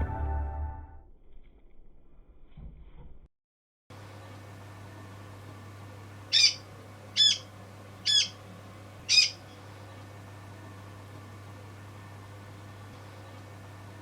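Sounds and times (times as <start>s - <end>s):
steady low hum: 4.0s - 14.0s
bird squawking: 6.3s - 6.6s, 7.2s - 8.4s, 9.0s - 9.5s.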